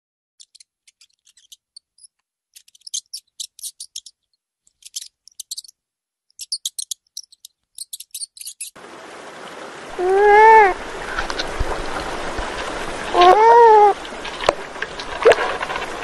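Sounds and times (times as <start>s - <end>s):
mouse squeaking: 0.4s - 8.8s
steady outdoor hiss: 8.2s - 16.0s.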